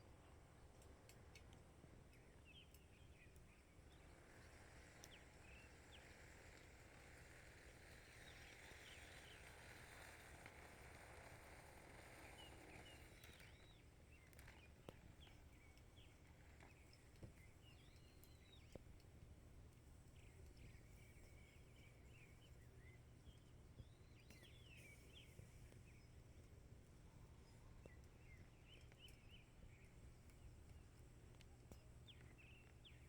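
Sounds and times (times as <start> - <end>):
soft hiss: 0.0 - 33.0
faint clicks: 0.7 - 4.0, 4.9 - 5.3, 5.9 - 19.2.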